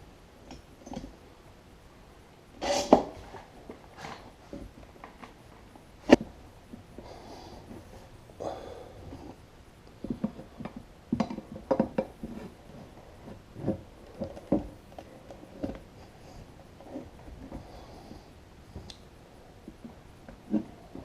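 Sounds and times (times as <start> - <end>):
tools knocking and scraping: 10.0 - 15.9.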